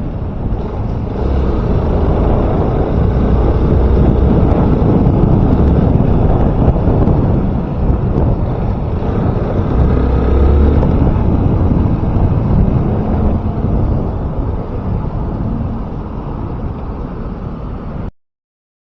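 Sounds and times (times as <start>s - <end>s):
wind rushing over microphone: 0.0s - 18.1s
motorcycle engine running: 0.1s - 16.0s.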